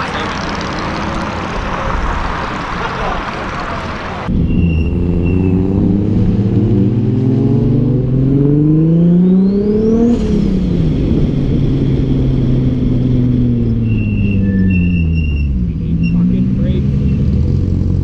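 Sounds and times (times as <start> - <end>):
car engine accelerating: 0.0 - 4.3.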